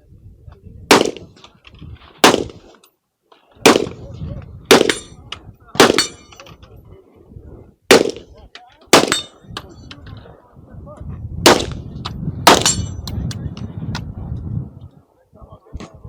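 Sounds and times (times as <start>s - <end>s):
gunshots: 0.9s - 1.3s, 2.2s - 2.7s, 3.6s - 4.0s, 4.7s - 5.1s, 5.8s - 6.2s, 7.9s - 9.4s, 11.4s - 11.8s, 12.4s - 12.9s
metallic ring of steel target: 5.9s - 6.4s, 9.0s - 9.5s, 12.5s - 13.1s.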